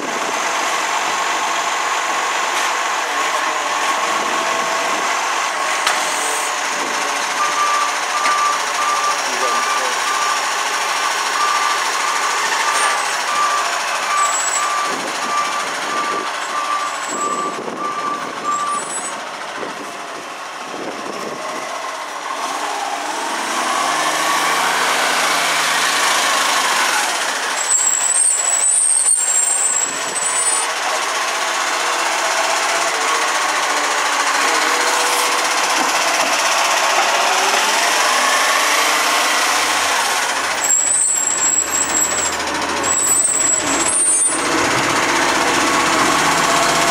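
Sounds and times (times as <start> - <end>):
garbage truck engine: 0.0 - 46.9
reversing beeper: 5.6 - 19.2, 23.4 - 31.0, 31.8 - 46.9.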